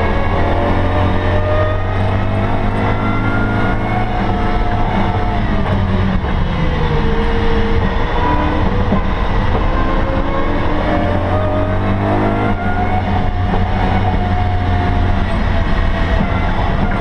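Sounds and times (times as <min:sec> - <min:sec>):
car engine revving hard: 0:00.0 - 0:17.0.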